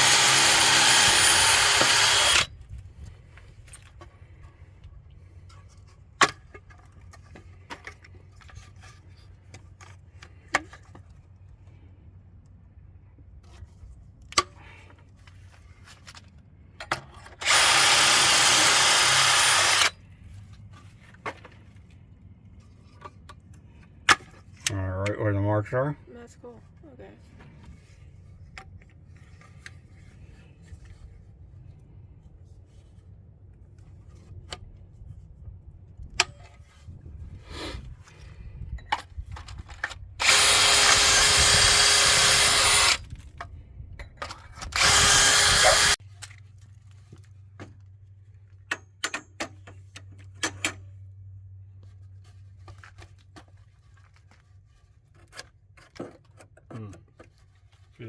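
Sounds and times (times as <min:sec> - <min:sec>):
power drill boring into wood: 0:00.0 - 0:02.5, 0:17.4 - 0:19.9, 0:40.2 - 0:43.1, 0:44.6 - 0:46.0.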